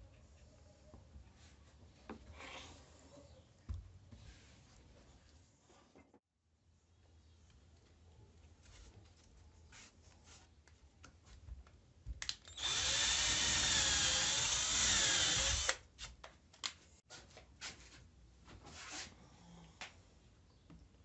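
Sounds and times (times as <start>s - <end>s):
electric drill running: 12.5s - 15.8s.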